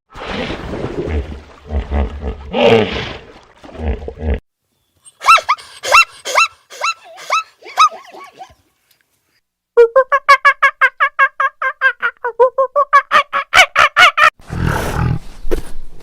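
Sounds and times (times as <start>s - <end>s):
animal short high calls: 5.1s - 8.2s.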